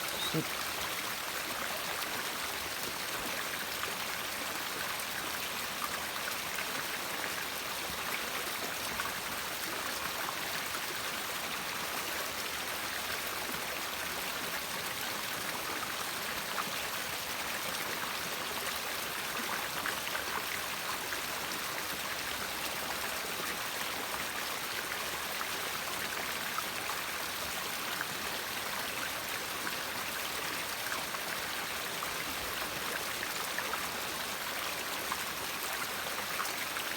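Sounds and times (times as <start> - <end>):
river water rushing: 0.0 - 0.8.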